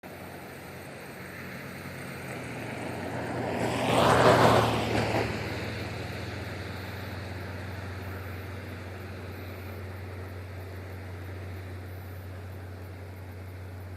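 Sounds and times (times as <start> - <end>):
low engine drone: 0.0 - 13.9
vehicle passing by: 0.1 - 13.8.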